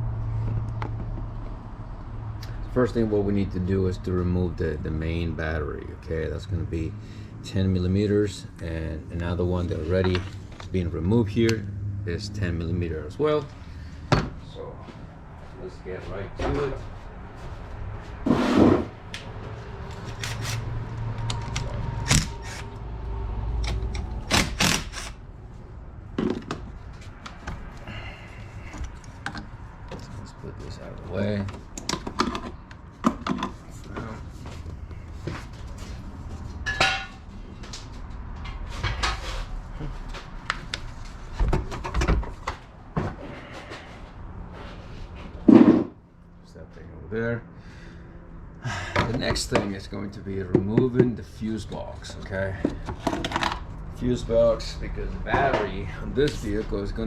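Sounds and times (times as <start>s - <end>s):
parts knocking and clicking: 28.7s - 30.1s, 31.4s - 33.6s, 52.6s - 53.7s.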